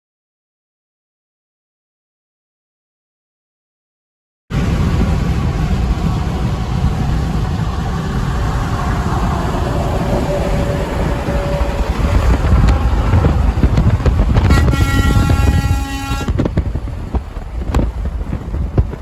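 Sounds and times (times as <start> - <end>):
heavy truck driving past: 4.5 - 19.0.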